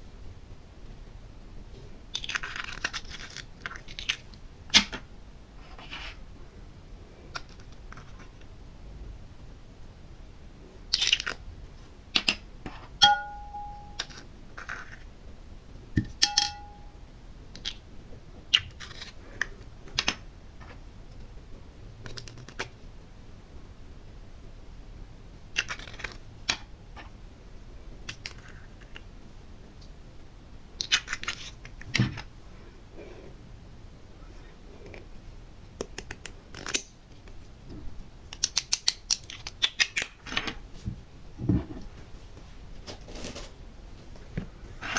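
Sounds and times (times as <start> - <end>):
short ringing clinks: 13.0 - 14.1, 16.2 - 17.0.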